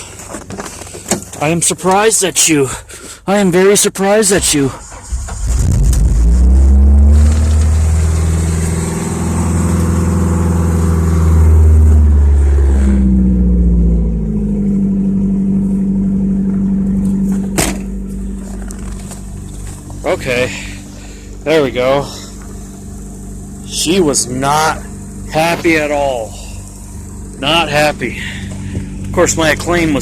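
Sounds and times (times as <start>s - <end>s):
cold car engine idling roughly: 0.0s - 30.0s.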